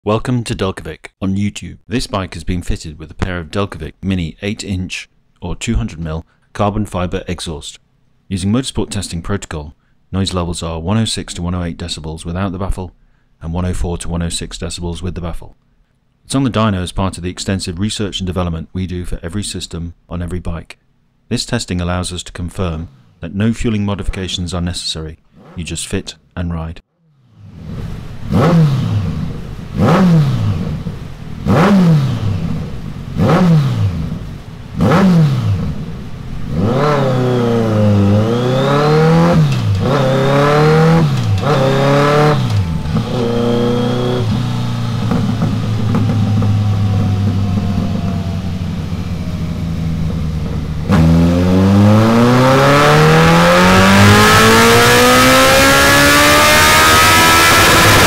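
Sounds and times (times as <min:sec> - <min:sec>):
motorcycle engine revving: 0:27.1 - 0:58.0.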